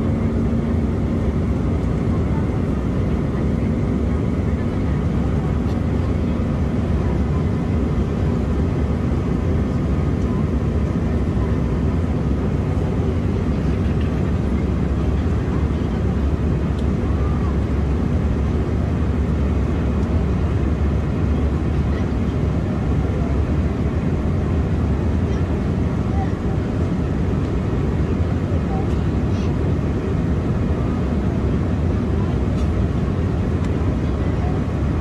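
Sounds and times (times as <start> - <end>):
airliner cabin engine roar: 0.0 - 35.0.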